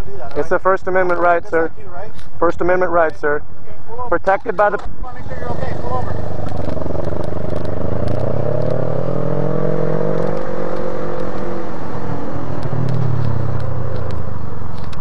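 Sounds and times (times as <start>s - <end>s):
motorcycle engine slowing down: 5.5s - 10.4s.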